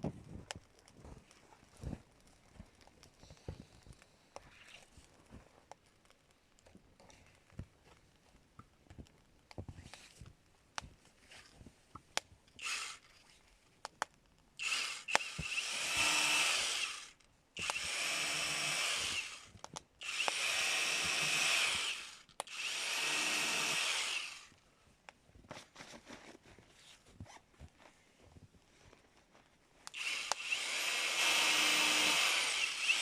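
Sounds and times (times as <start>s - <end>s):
power drill running: 12.6s - 13.0s, 14.6s - 24.5s, 29.9s - 33.0s
small knocks and clicks: 19.5s - 20.4s.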